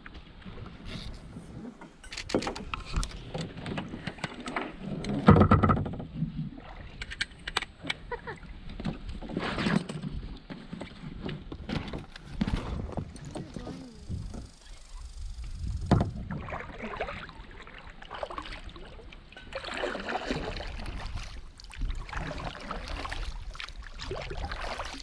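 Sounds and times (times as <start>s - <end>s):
water noise: 0.0s - 25.0s
knocks against boat hull: 5.2s - 6.0s, 15.8s - 16.3s.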